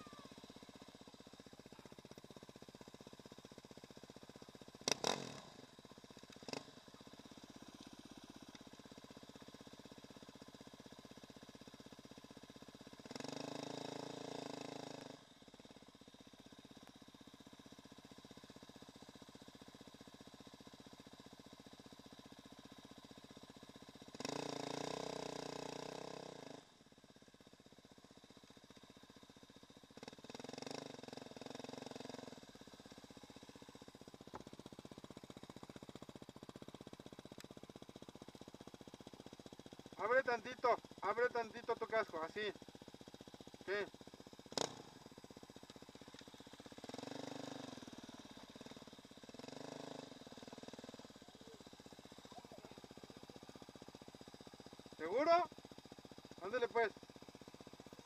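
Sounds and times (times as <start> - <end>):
dirt bike engine revving: 4.8 - 7.6, 13.0 - 15.3, 24.0 - 26.7, 30.0 - 35.9, 39.9 - 42.6, 43.4 - 58.0.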